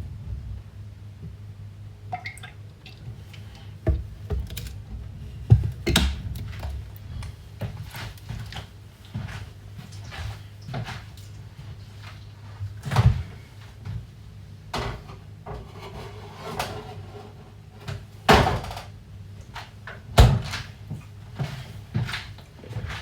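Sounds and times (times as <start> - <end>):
steady low hum: 0.0 - 19.8
cupboard doors and cookware knocking: 3.9 - 4.7.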